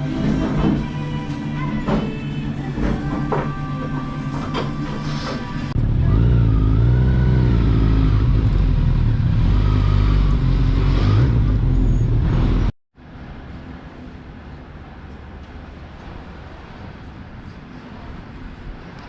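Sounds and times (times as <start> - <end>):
music: 0.0 - 5.8
motorcycle engine revving: 5.8 - 12.8.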